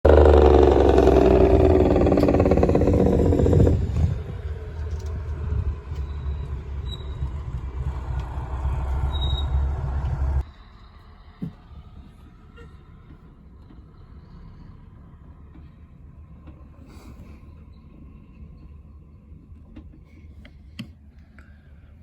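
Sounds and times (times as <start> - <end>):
truck engine running: 0.0 - 10.4.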